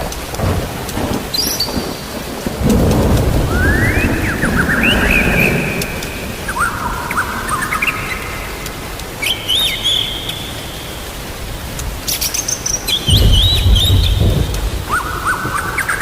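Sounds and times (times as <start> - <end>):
low rumble of thunder: 0.0 - 8.5, 12.9 - 16.0
rain hissing: 0.0 - 16.0
songbird whistling: 3.4 - 8.5, 9.2 - 11.0, 12.2 - 14.3.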